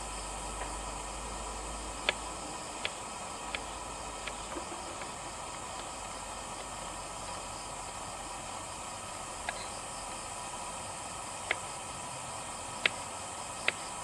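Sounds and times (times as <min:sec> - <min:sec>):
insects hissing: 0:00.0 - 0:14.0
sharp clicks: 0:13.6 - 0:13.8.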